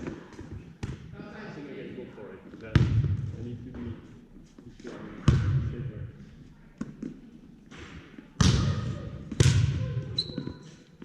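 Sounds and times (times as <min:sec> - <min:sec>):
high squeak: 0:10.2 - 0:10.8.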